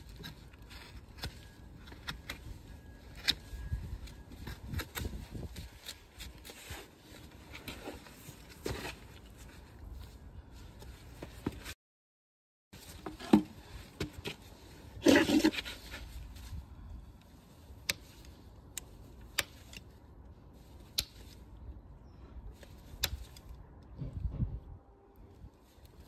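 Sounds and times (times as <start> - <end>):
tools scraping hoof: 15.0 - 16.2.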